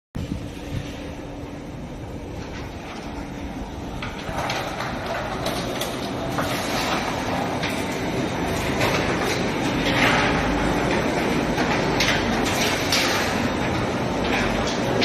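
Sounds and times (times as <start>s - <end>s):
mechanical rumble: 0.2s - 15.0s.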